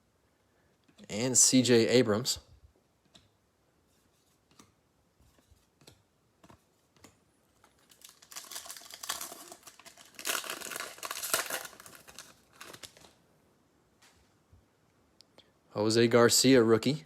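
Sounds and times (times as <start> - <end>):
foil wrapper crinkling: 7.6 - 13.2.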